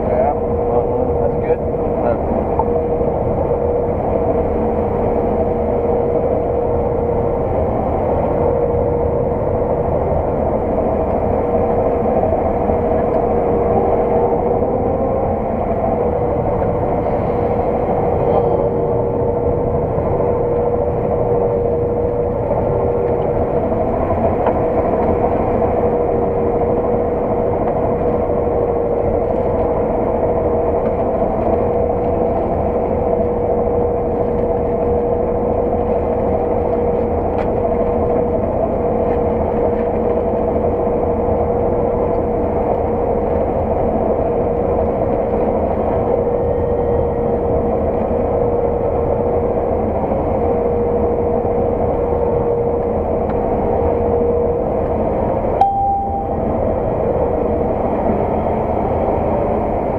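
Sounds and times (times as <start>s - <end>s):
engine drone: 0.0s - 59.9s
steady machine whine: 0.0s - 59.9s.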